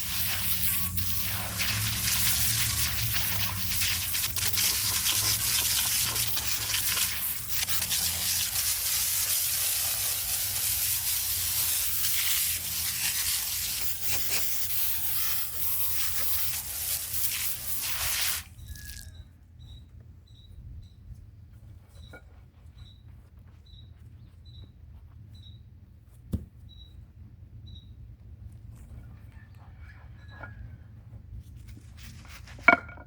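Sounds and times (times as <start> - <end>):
stiff brush scrubbing concrete: 0.0 - 19.0.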